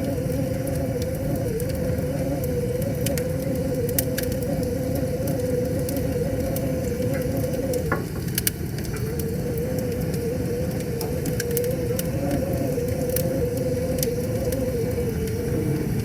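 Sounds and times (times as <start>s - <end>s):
wavering hum: 0.0s - 8.0s, 8.8s - 16.0s
wood fire crackling: 0.0s - 16.0s.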